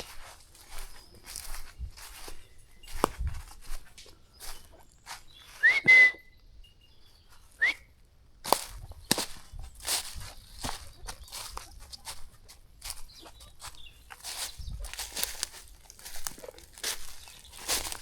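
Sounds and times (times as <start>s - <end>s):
footsteps on a path: 0.0s - 6.1s, 8.4s - 18.0s
short upward whistles: 5.6s - 6.4s, 7.6s - 7.9s.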